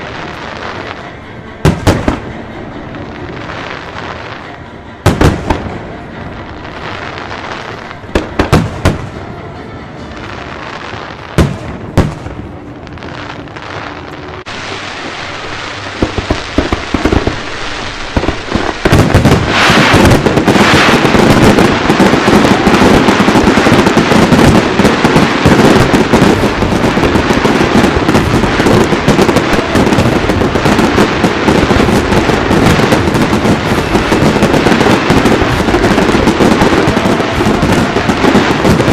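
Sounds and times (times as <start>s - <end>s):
fireworks bangs and crackle: 0.0s - 9.3s, 10.1s - 38.9s.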